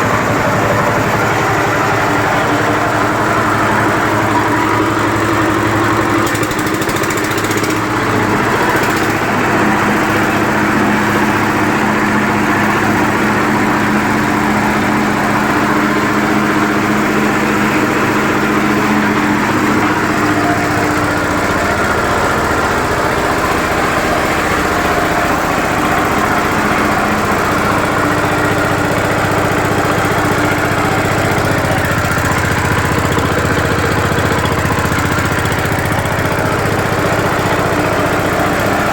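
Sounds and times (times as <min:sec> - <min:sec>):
diesel engine running compressor: 0:00.0 - 0:38.9.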